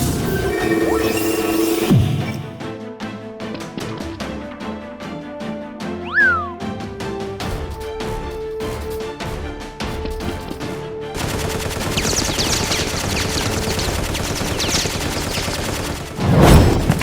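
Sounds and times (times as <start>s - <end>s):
background music: 0.0s - 17.0s
automatic gunfire: 11.2s - 16.2s.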